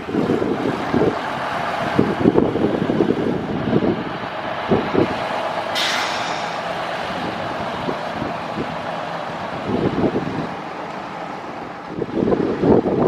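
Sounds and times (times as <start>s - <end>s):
wind on microphone: 0.0s - 10.6s, 11.8s - 13.0s
vehicle running: 0.0s - 13.0s
short hiss: 5.8s - 6.8s.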